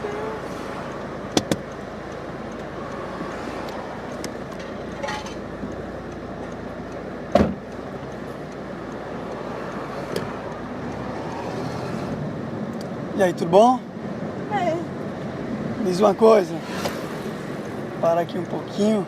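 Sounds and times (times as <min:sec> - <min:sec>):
street traffic: 0:00.0 - 0:19.0
faint clicks: 0:00.9 - 0:05.0
sharp thump: 0:07.3 - 0:07.6.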